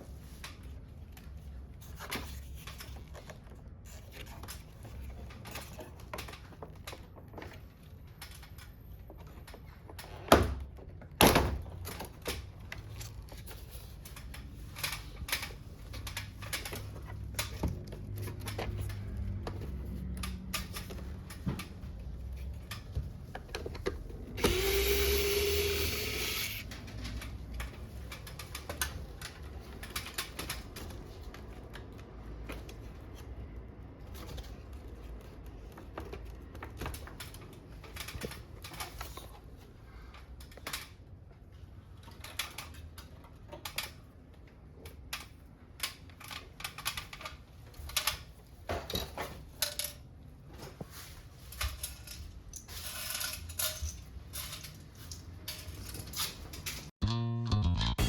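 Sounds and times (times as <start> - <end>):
power driver whirring: 24.4 - 26.6.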